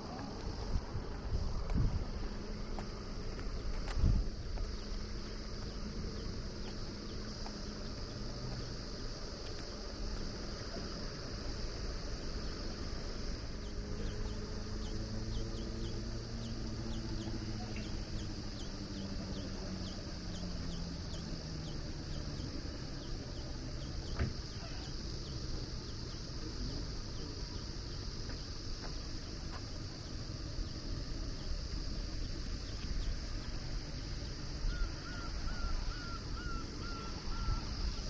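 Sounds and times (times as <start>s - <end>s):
insects chirping: 0.0s - 38.0s
low hum: 0.0s - 38.0s.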